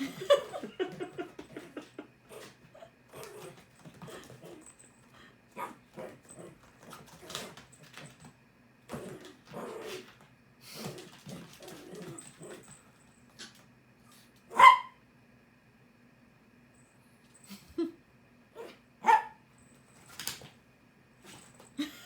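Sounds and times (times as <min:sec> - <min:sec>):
small dogs whimpering and moving: 0:00.3 - 0:08.3, 0:08.9 - 0:14.4, 0:19.8 - 0:20.5
dog barking sharply: 0:14.5 - 0:15.0, 0:19.0 - 0:19.4.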